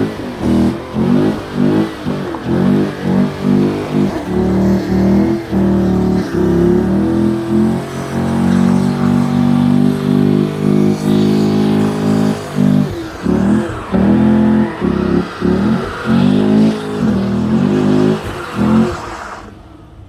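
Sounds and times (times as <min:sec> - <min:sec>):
car engine revving: 0:00.0 - 0:19.8.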